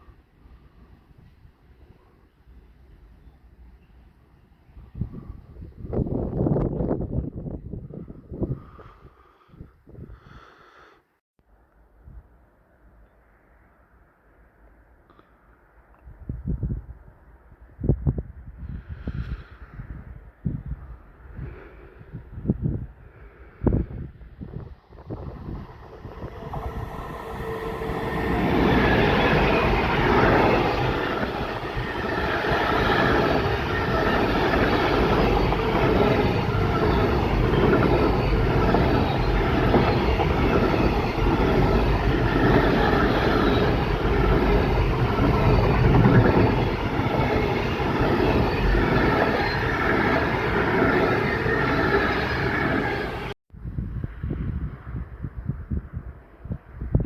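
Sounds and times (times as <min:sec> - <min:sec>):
freight train rumbling past: 0:23.7 - 0:53.4.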